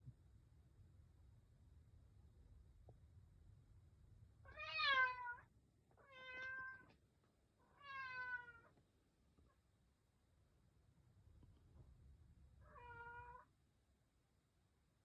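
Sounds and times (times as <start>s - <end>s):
cat meowing: 4.5s - 6.9s, 7.7s - 8.7s, 12.6s - 13.5s.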